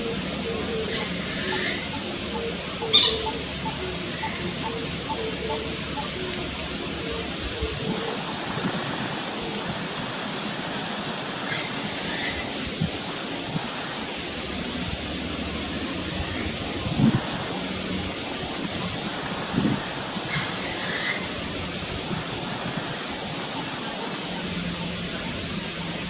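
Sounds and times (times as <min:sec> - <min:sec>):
rushing water noise: 0:00.0 - 0:26.0.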